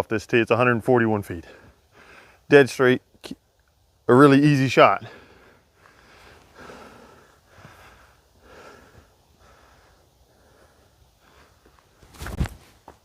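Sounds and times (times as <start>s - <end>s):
faint breaths: 1.4s - 2.5s, 5.0s - 12.2s
soft body movement: 11.4s - 13.0s.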